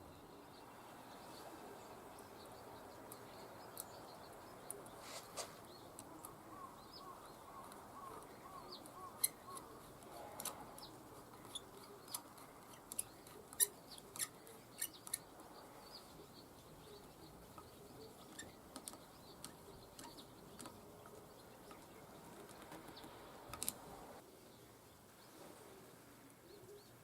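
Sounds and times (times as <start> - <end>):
thin high bird calls: 0.2 - 24.0
light clicks and taps: 18.3 - 23.9.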